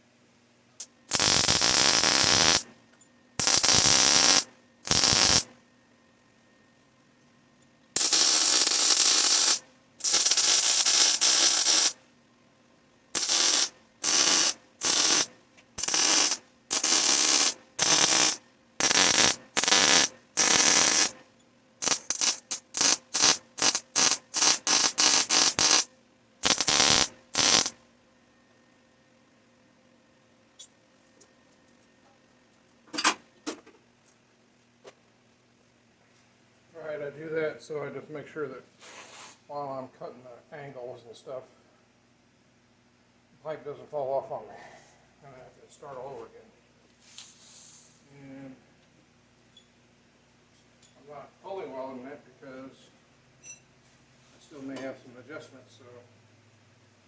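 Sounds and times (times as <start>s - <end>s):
welding arc bursts: 0.8s - 2.7s, 3.4s - 5.5s, 8.0s - 12.0s, 13.2s - 21.2s, 21.8s - 27.8s.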